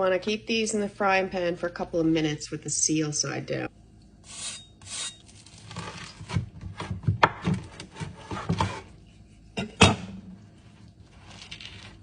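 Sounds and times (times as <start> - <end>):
scraping in a frying pan: 10.4 - 12.0.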